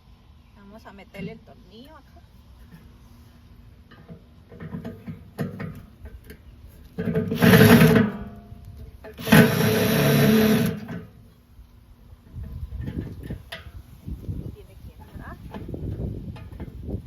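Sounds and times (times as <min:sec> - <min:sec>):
handling clicks and knocks: 0:03.9 - 0:09.2
electric drill driving a screw: 0:07.4 - 0:08.0, 0:09.2 - 0:11.0.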